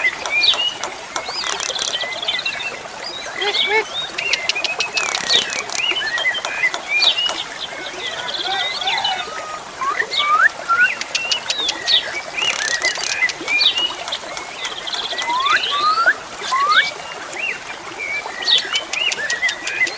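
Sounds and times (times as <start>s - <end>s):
starling singing: 15.2s - 16.9s.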